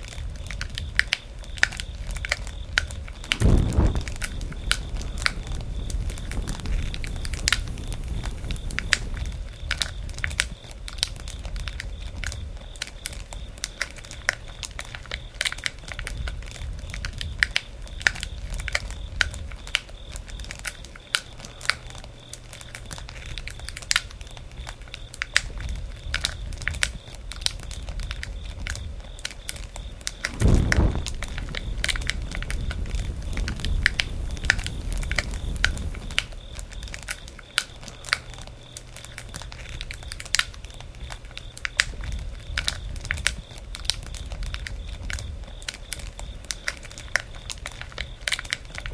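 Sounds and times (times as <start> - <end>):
low rush: 3.2 - 9.4, 30.2 - 36.4
campfire crackling and popping: 3.2 - 9.5, 30.2 - 36.6
low rumble of fire: 3.2 - 9.8, 30.2 - 37.1.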